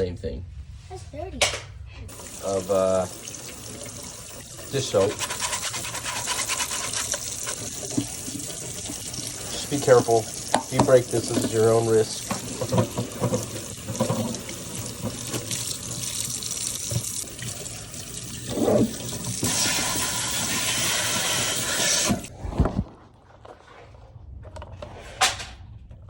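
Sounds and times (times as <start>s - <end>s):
kitchen tap running: 2.1s - 22.3s.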